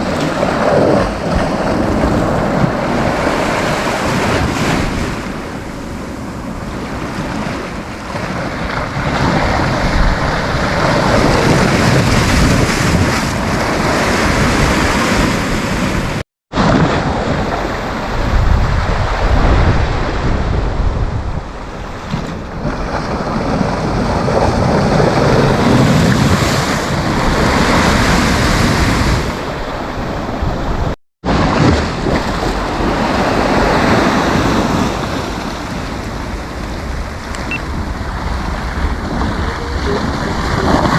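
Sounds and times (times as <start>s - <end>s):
sea waves breaking on a beach: 0.0s - 40.9s
wind buffeting the microphone: 0.0s - 40.9s.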